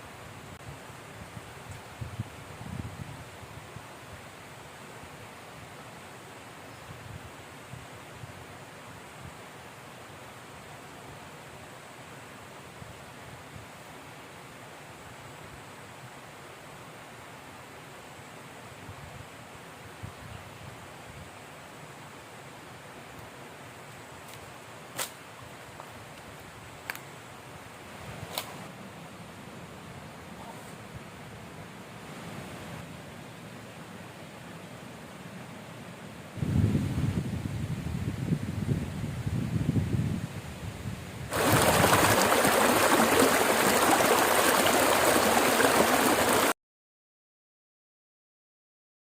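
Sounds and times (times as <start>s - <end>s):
forest river rushing: 0.0s - 20.0s, 41.1s - 46.6s
strong wind: 0.6s - 3.8s, 36.4s - 46.5s
river water rushing: 41.3s - 46.6s.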